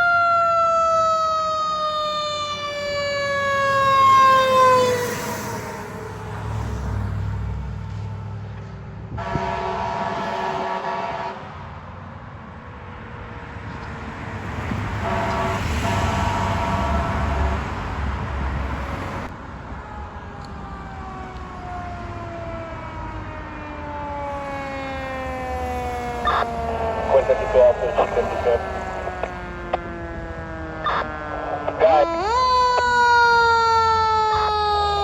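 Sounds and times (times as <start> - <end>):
truck engine and road noise: 0.0 - 35.0
fire engine air horn blasts: 9.2 - 11.6, 15.0 - 17.8
mechanical siren winding down: 23.9 - 35.0.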